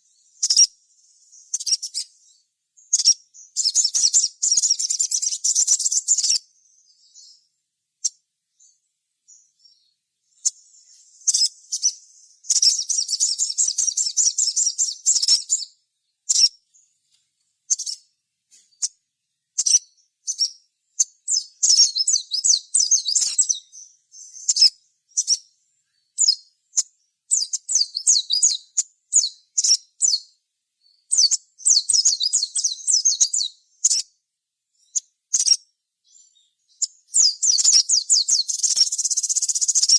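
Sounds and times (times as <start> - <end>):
bird singing high chirps: 0.0 - 17.0, 17.7 - 34.2, 34.8 - 39.9
bird rapid chattering notes: 37.2 - 39.9.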